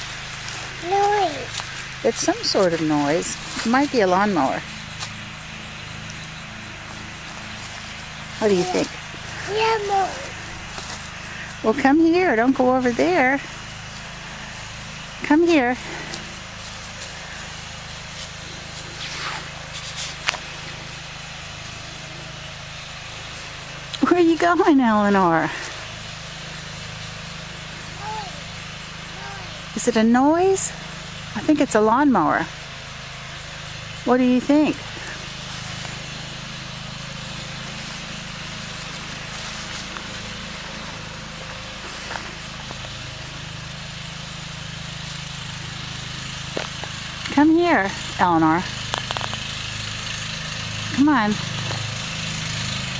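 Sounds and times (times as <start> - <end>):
small engine droning: 0.0 - 52.9
faint rustles: 37.6 - 43.1.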